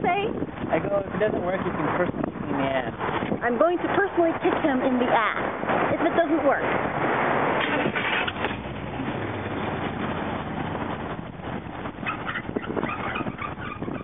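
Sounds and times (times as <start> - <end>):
truck engine humming and rattling: 3.0 - 14.0.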